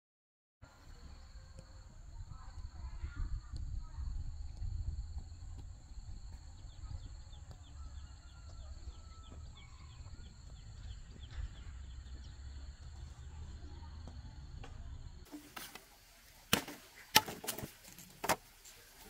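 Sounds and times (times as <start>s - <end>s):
bird chirping: 6.3s - 13.8s.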